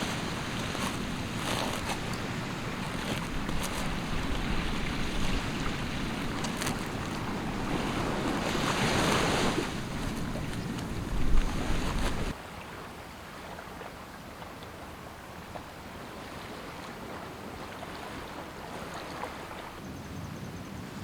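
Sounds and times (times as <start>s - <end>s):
wind buffeting microphone: 0.0s - 12.4s
ocean surf on beach: 0.0s - 13.5s.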